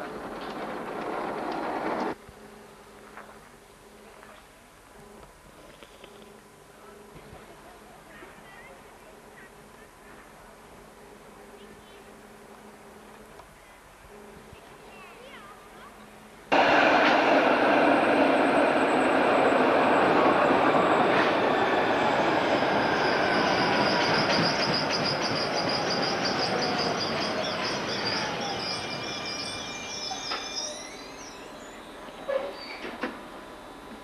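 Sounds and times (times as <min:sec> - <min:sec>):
train rolling on track: 0:00.0 - 0:03.0, 0:16.2 - 0:34.0
train wheels squealing: 0:17.7 - 0:33.1.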